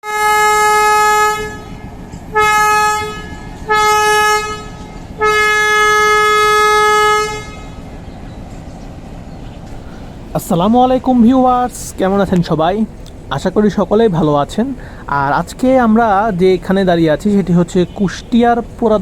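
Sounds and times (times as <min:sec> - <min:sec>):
train horn blasts: 0:00.0 - 0:08.0.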